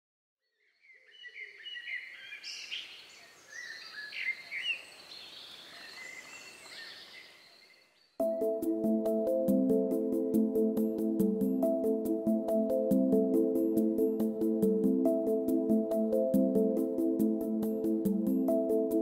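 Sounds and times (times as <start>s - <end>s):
small birds singing: 0.5s - 19.0s
music with a steady beat: 8.2s - 19.0s.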